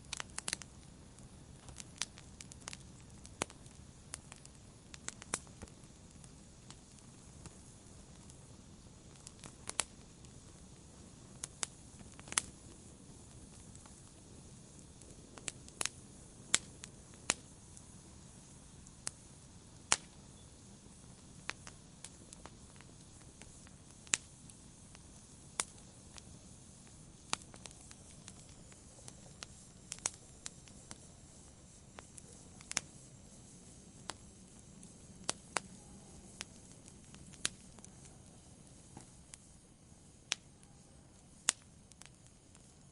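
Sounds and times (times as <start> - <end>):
soft steady hiss: 0.0 - 42.9
wood fire crackling: 0.0 - 42.9.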